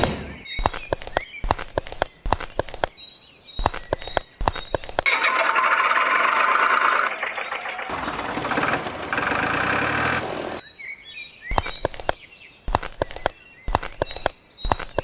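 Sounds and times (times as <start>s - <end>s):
sharp clicks: 0.0s - 3.0s, 3.6s - 8.0s, 11.5s - 15.0s
birds chirping: 0.0s - 15.0s
small motor running: 5.1s - 10.6s.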